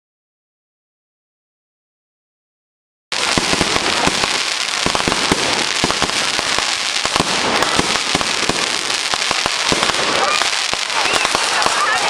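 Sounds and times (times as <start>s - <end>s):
fireworks crackling: 3.1s - 12.0s.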